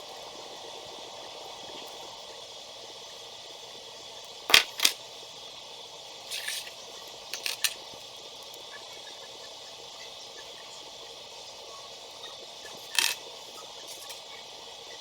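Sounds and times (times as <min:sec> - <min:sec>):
steady hiss: 0:00.0 - 0:15.0
plastic pieces clicking and rattling: 0:04.5 - 0:05.0, 0:07.4 - 0:07.8, 0:12.8 - 0:13.2.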